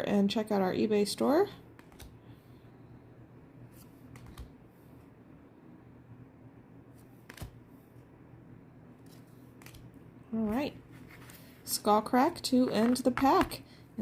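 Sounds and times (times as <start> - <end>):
low background hum: 0.0 - 14.0
trading cards sliding and flicking: 1.8 - 2.2, 3.7 - 4.6, 6.9 - 7.7, 9.0 - 9.9.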